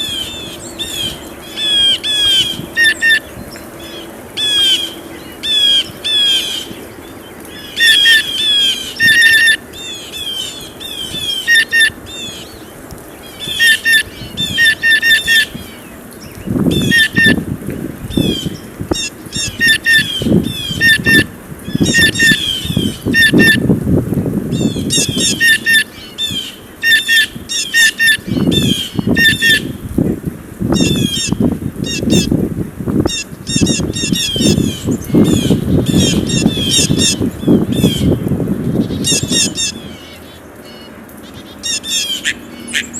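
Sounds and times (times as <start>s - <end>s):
blue jays calling: 0.0s - 15.8s, 33.1s - 42.9s.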